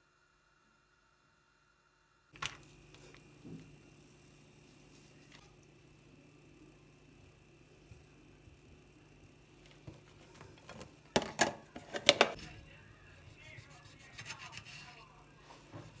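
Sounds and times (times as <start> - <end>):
scraping and rubbing: 13.2 - 15.2.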